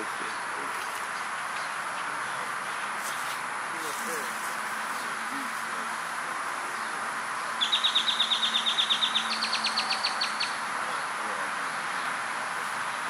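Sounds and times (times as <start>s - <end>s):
steady background noise: 0.0s - 13.0s
songbird trilling: 7.4s - 10.6s.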